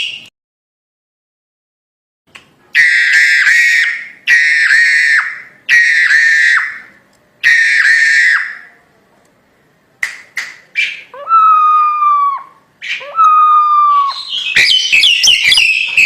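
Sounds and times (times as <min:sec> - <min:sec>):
myna bird harsh calls: 0:02.8 - 0:08.7, 0:10.7 - 0:16.0.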